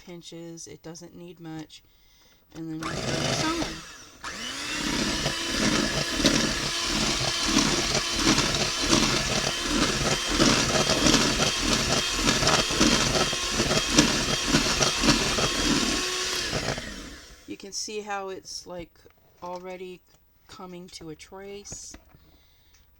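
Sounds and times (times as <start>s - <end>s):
electric mixer whipping cream: 2.8s - 17.5s.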